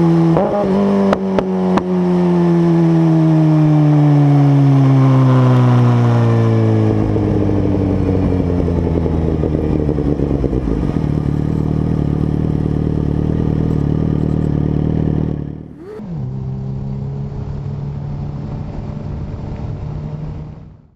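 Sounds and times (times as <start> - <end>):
motorcycle engine rough idle: 7.1 - 16.0.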